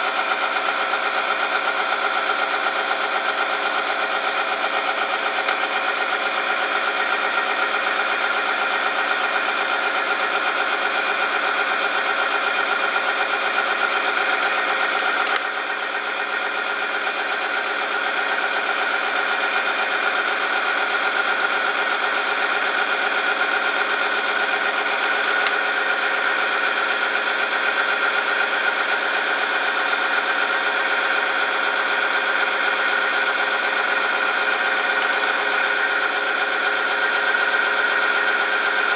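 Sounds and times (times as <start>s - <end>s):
machine motor high whine: 18.0s - 38.9s.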